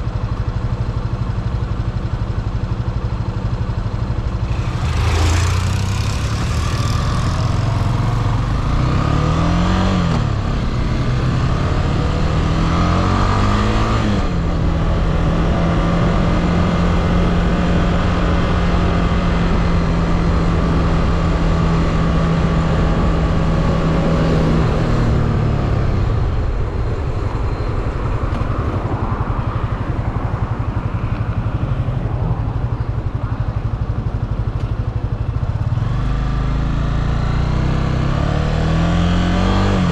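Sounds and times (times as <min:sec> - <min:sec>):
motorcycle engine revving: 0:02.0 - 0:26.4, 0:28.8 - 0:39.9.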